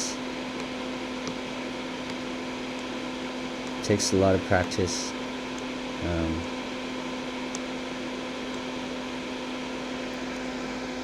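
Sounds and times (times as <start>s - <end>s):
fan-like mechanical hum: 0.0s - 11.0s.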